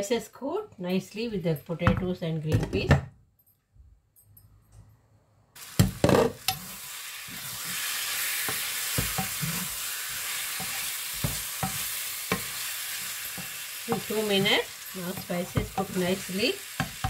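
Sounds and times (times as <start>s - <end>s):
food sizzling in oil: 5.6s - 17.0s
wooden spoon stirring: 7.4s - 17.0s
spoon knocking against pan: 15.1s - 16.1s, 16.8s - 17.0s.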